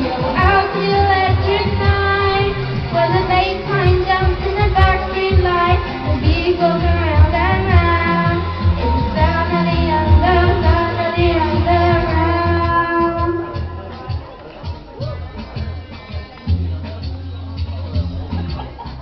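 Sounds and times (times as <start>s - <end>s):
woman singing pop melody: 0.0s - 14.2s
steady bass beat: 0.0s - 19.0s.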